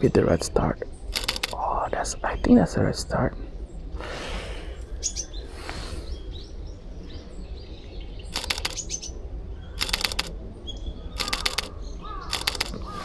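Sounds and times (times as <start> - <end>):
camera shutter clicks: 1.2 - 1.6, 8.3 - 8.9, 9.8 - 10.3, 11.2 - 13.0
faint small bird chirps: 4.6 - 13.0.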